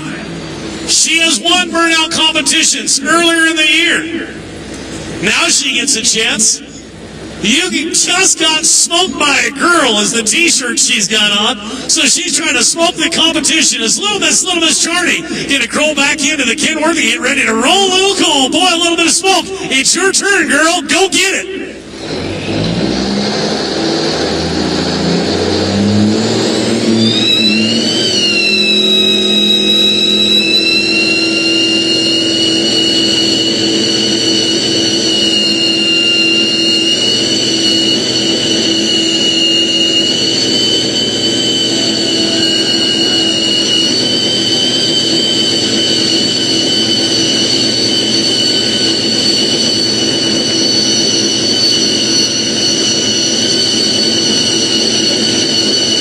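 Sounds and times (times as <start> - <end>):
high-pitched whine: 0.0 - 56.0
truck diesel engine revving: 21.7 - 55.3.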